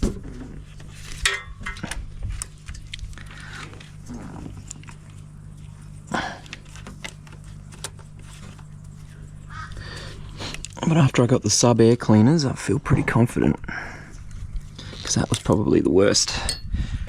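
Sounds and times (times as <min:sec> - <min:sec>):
steady low hum: 0:00.0 - 0:17.0
clicks and rustles of handling parts: 0:06.4 - 0:09.0.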